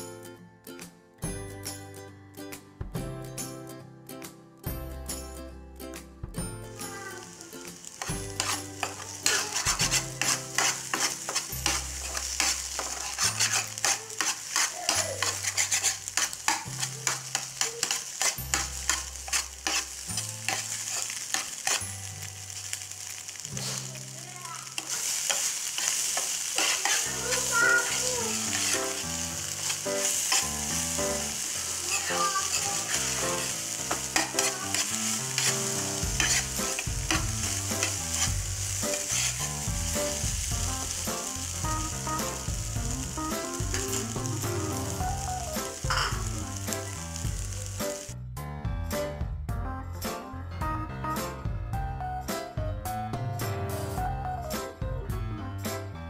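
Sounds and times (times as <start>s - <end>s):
food sizzling: 6.4s - 48.2s
spatula scraping a frying pan: 7.9s - 44.3s.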